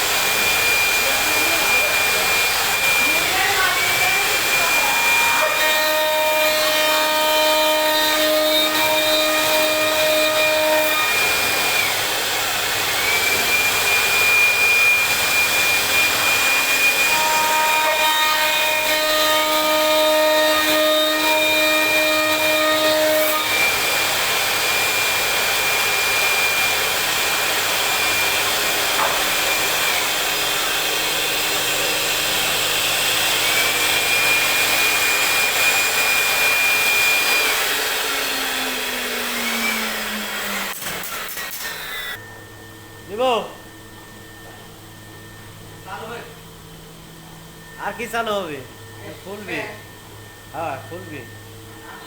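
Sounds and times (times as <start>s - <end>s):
wood cutting noise: 0.0s - 43.6s
router spindle whine: 0.0s - 52.0s
low humming tones: 42.2s - 52.0s.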